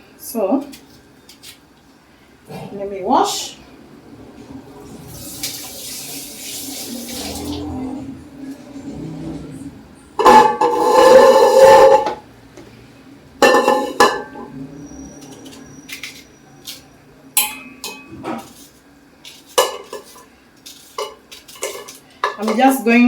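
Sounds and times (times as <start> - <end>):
tap water running: 4.3 - 8.7
dishes and utensils clinking: 10.2 - 12.2, 13.4 - 23.0.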